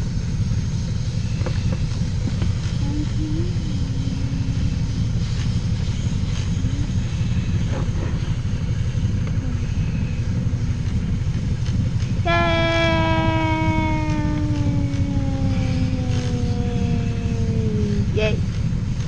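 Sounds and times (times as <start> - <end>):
lathe motor rumble: 0.0 - 19.0
pitched whine falling in pitch: 12.2 - 18.4.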